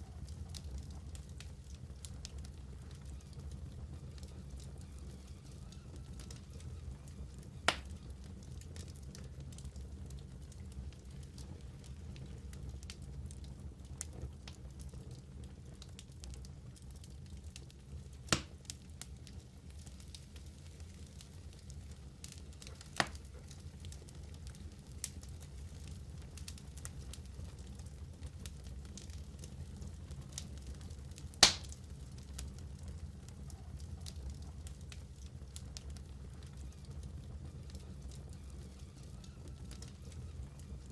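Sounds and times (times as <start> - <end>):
fire burning in fireplace: 0.0 - 40.9
loud sharp pop: 18.3 - 18.5, 31.4 - 31.7.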